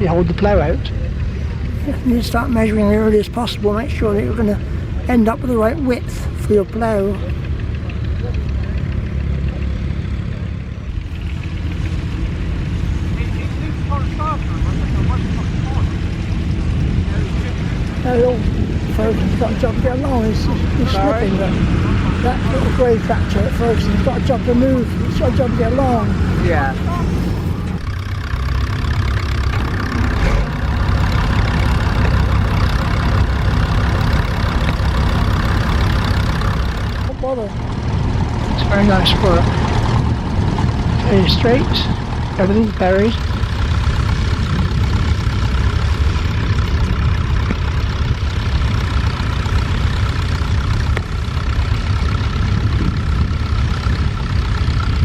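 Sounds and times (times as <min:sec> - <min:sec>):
tractor engine running: 0:00.0 - 0:55.0
wind buffeting microphone: 0:10.9 - 0:27.9, 0:29.6 - 0:55.0.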